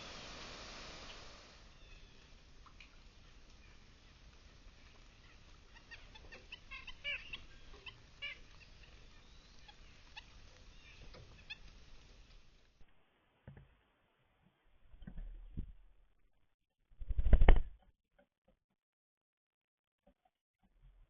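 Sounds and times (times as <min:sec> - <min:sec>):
small songbirds chirping: 0:01.0 - 0:12.7.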